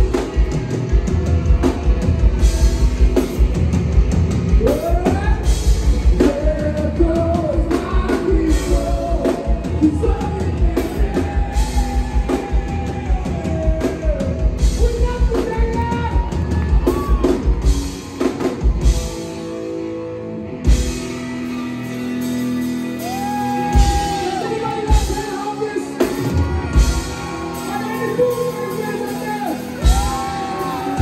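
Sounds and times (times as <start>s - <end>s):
pounding drum kit: 0.0s - 19.6s, 20.6s - 31.0s
lead vocal singing: 4.6s - 15.8s.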